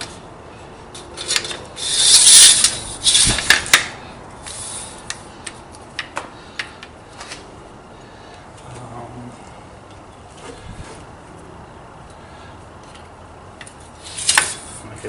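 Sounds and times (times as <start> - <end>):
metal parts scraping: 1.0 - 3.8, 14.0 - 14.8.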